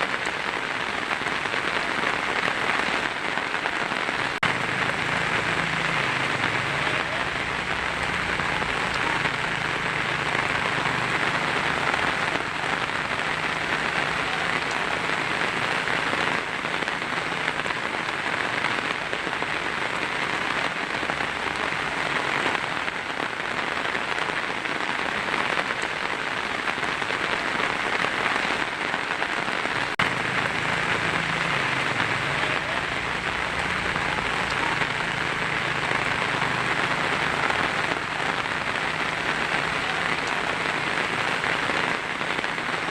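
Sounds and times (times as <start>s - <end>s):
heavy rain on a tin roof: 0.0s - 42.9s.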